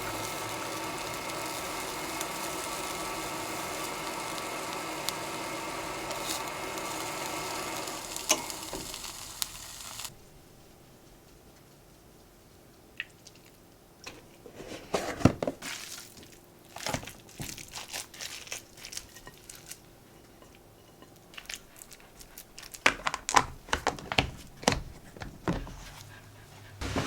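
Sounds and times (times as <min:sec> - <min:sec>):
crinkling and rustling: 0:08.1 - 0:20.6, 0:21.3 - 0:26.1.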